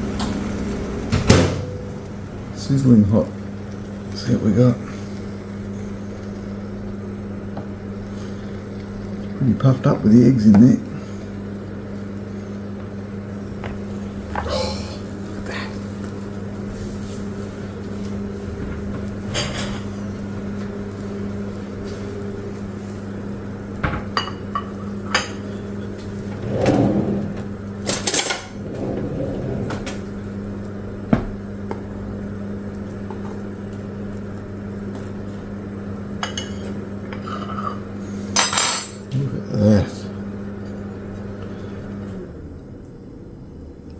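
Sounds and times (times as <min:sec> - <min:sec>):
steady low hum: 0:00.0 - 0:43.9
kitchenware clicking and clattering: 0:26.2 - 0:30.0, 0:38.4 - 0:39.1.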